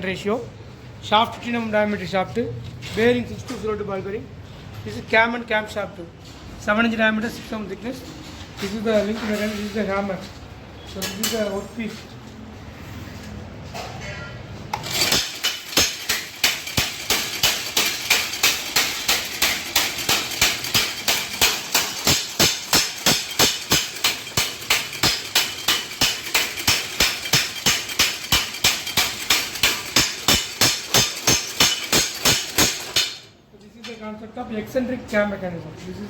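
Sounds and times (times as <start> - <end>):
power hammer striking: 14.7 - 33.3.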